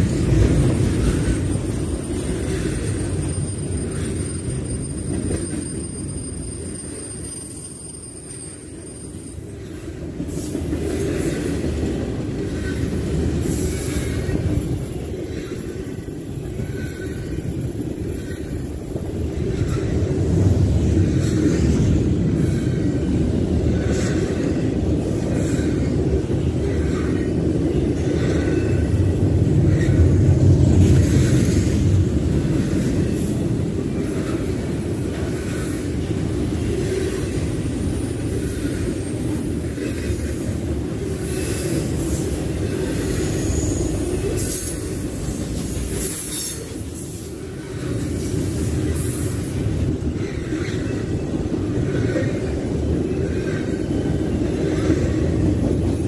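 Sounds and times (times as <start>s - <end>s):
high wheel squeal: 0.0s - 11.6s
freight train wheels rumbling: 0.0s - 56.0s.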